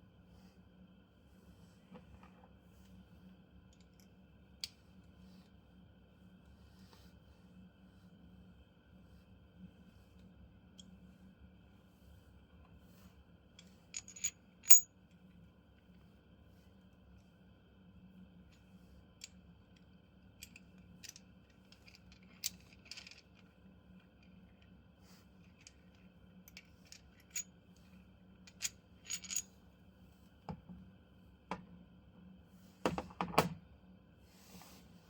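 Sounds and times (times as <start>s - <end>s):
small metal parts clinking: 14.0s - 14.9s, 20.5s - 23.4s, 28.5s - 29.4s.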